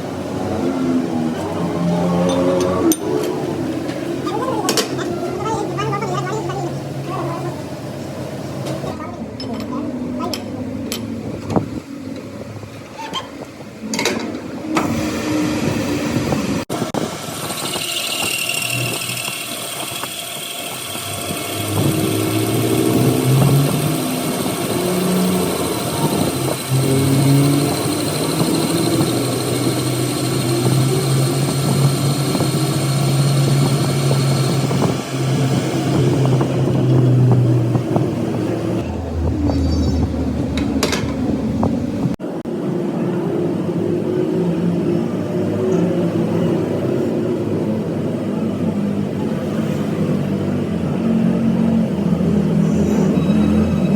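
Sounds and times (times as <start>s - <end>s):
engine running: 14.7s - 53.9s.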